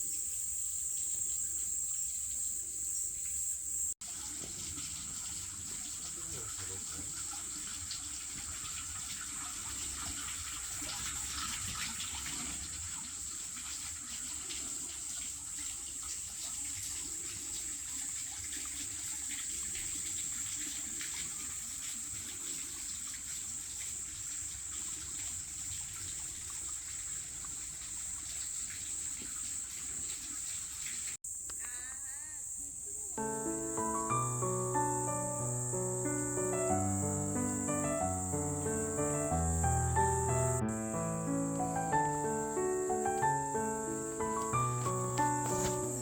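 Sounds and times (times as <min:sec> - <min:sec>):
water trickling and splashing: 0:04.0 - 0:31.2, 0:33.2 - 0:46.0
high hiss: 0:31.2 - 0:46.0.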